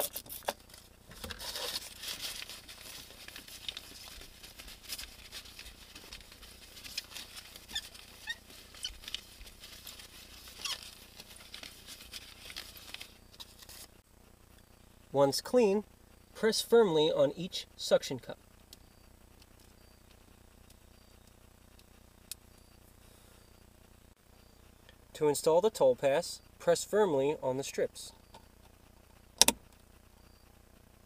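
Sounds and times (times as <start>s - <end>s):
paper rubbing on glass: 1.3s - 14.0s.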